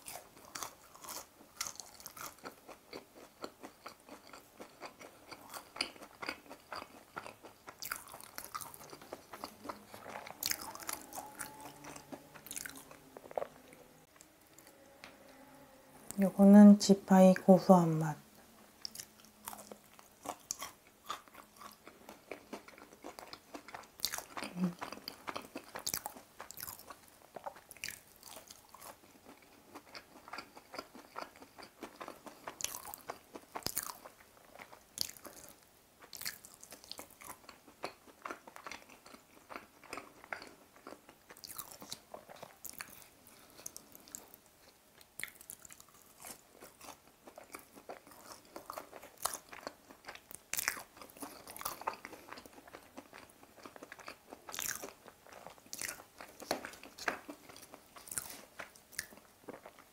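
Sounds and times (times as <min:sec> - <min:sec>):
crunchy chewing of fried chicken: 0:00.0 - 0:16.2, 0:18.7 - 0:59.9.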